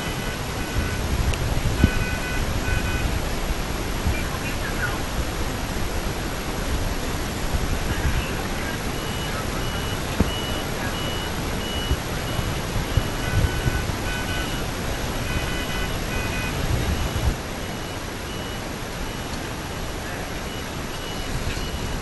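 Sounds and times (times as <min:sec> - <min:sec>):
rushing machine or wind noise: 0:00.0 - 0:22.0.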